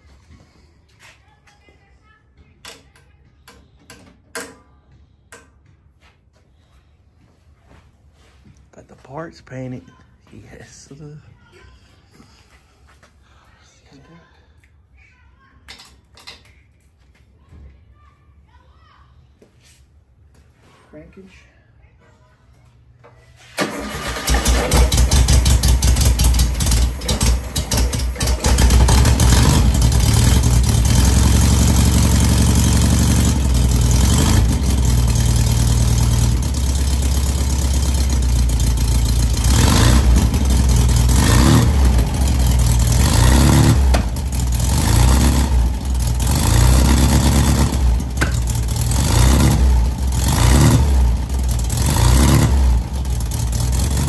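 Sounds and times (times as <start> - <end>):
car engine starting and revving: 23.6 - 54.0.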